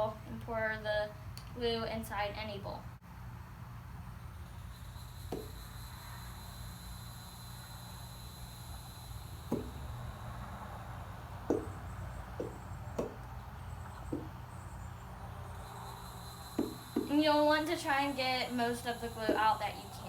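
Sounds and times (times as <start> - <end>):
steady low hum: 0.0 - 20.0
soft knocks: 5.3 - 5.6, 9.5 - 9.9, 11.5 - 11.8, 12.4 - 13.3, 14.1 - 14.4, 16.6 - 17.1.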